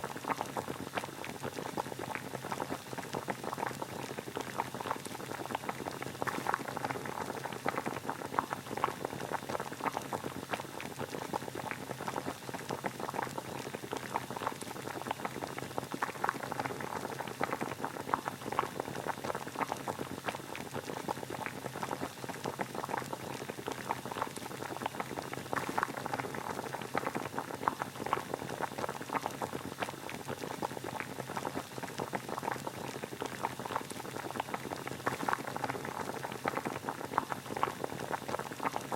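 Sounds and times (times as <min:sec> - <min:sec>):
water boiling: 0:00.0 - 0:38.9.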